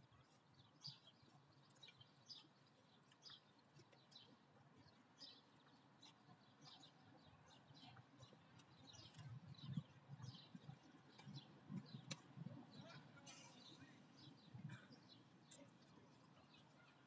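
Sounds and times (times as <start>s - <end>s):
faint songbirds chirping: 0.0s - 17.0s.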